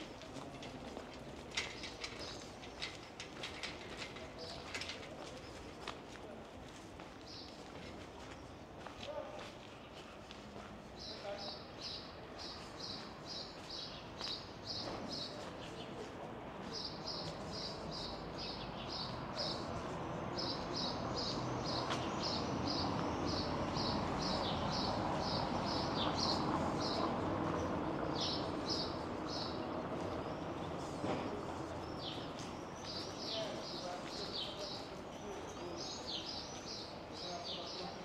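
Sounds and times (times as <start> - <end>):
street noise: 0.0 - 38.0.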